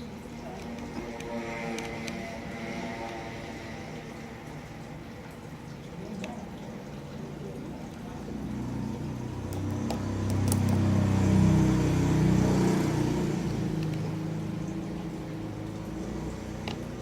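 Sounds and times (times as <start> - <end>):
vehicle engine passing by: 8.2 - 17.0.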